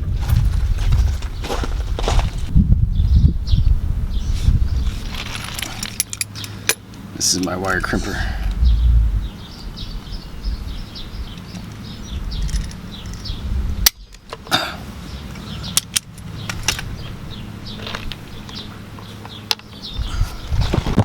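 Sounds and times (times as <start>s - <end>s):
steady low hum: 7.0s - 18.4s.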